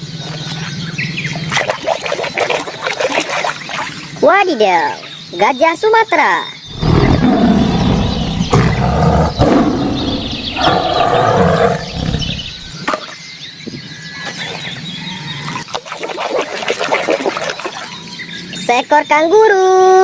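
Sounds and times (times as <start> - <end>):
animal roar: 6.7 - 12.8.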